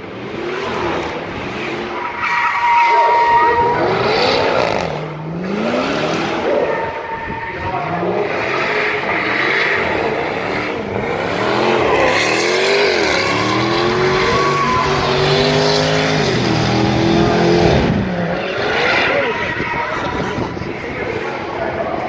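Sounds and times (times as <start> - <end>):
engine revving hard: 3.6 - 6.7, 8.0 - 20.7.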